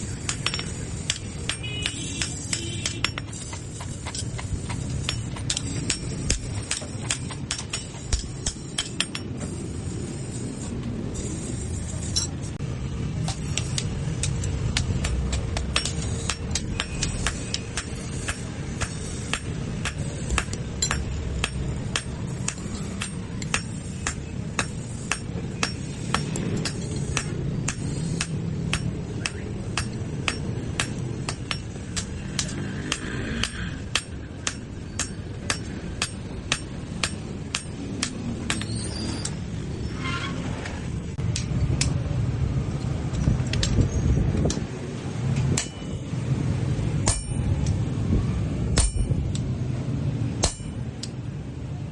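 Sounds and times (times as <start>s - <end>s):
hammer striking steel on anvil: 0.0s - 9.8s, 13.2s - 39.4s, 45.5s - 46.2s, 46.9s - 47.8s, 48.7s - 49.4s, 50.3s - 51.2s.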